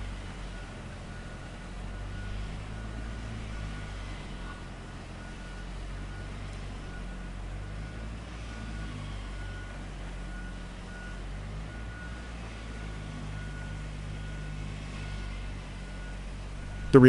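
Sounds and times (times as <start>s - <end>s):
construction machinery engine running: 0.0s - 17.0s
warning beeper: 16.8s - 17.0s.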